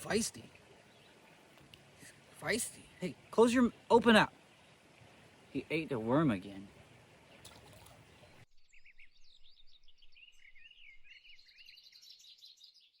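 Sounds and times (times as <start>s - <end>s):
steady hiss: 0.0s - 7.4s
birds singing faintly: 0.0s - 13.0s.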